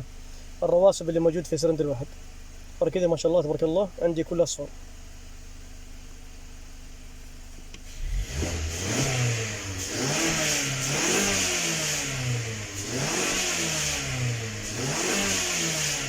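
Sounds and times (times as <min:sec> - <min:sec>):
car engine revving: 0:07.8 - 0:16.0.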